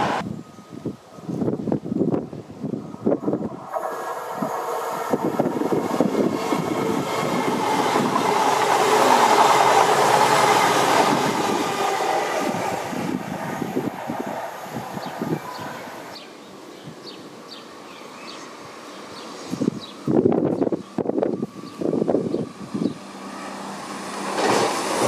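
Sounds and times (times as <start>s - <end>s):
train engine passing: 2.0s - 16.7s, 17.3s - 25.0s
wheels clattering on rails: 24.1s - 25.0s.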